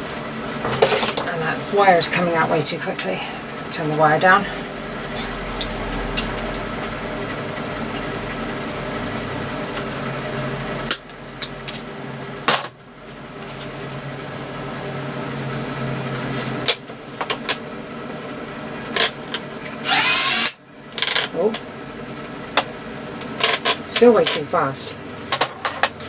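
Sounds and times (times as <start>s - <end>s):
welder humming: 18.9s - 22.0s.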